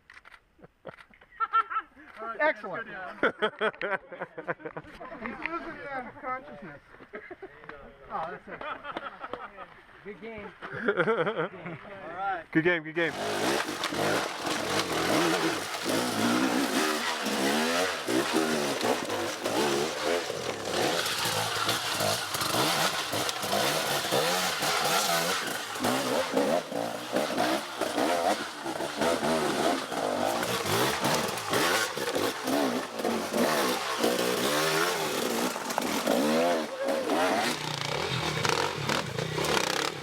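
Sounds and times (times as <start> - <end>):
motorcycle engines revving: 13.1 - 40.0.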